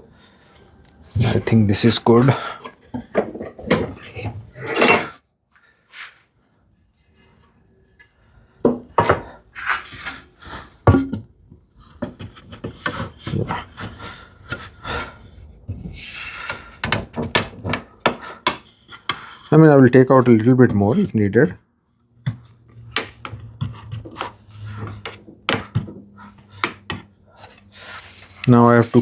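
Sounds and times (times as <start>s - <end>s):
wood scraping and rubbing: 22.8s - 29.0s.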